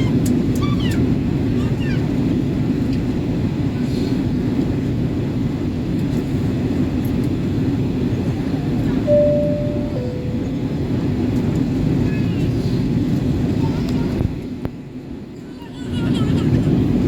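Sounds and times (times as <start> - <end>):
aircraft cabin roar: 0.0 - 17.0
two-note cabin chime: 9.1 - 11.3.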